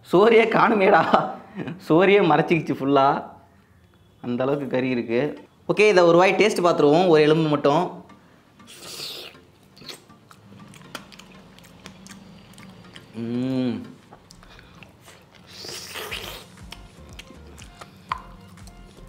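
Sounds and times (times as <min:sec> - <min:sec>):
airy sucking sounds: 0:08.6 - 0:10.0
wet chewing and mouth clicks: 0:08.7 - 0:19.0
person humming: 0:13.1 - 0:14.1.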